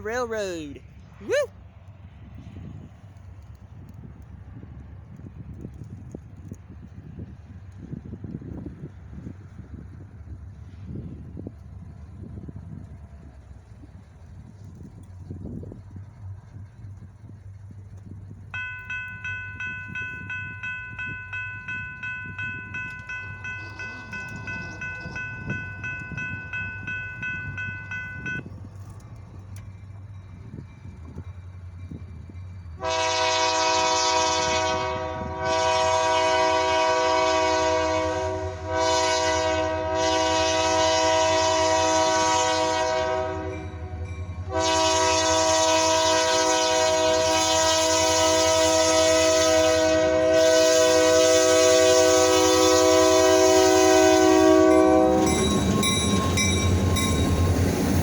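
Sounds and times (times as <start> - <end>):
low engine rumble: 0.0 - 37.2, 39.8 - 58.0
bell ringing: 18.6 - 28.4, 54.7 - 58.0
locomotive air horn blasts: 32.8 - 55.9.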